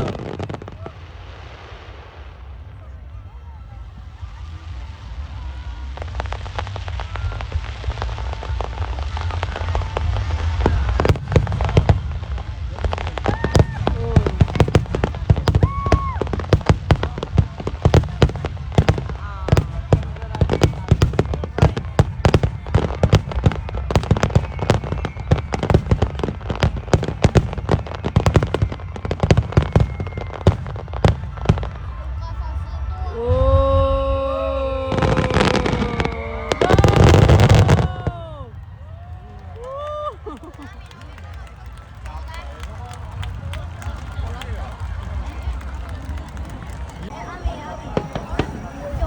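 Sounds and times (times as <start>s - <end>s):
fireworks bangs: 0.0s - 49.0s
fireworks crackling: 0.0s - 49.0s.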